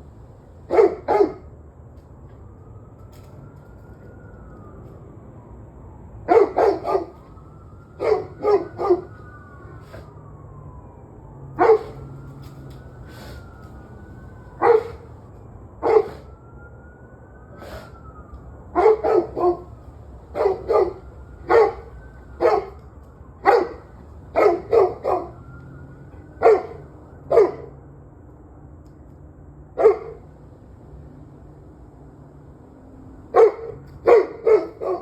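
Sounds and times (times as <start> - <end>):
dog barking: 0.7 - 1.5, 6.3 - 7.3, 8.0 - 9.2, 11.6 - 12.1, 14.6 - 15.1, 15.8 - 16.3, 18.8 - 19.7, 20.3 - 22.8, 23.4 - 25.4, 26.4 - 27.8, 29.8 - 30.3, 33.3 - 35.0.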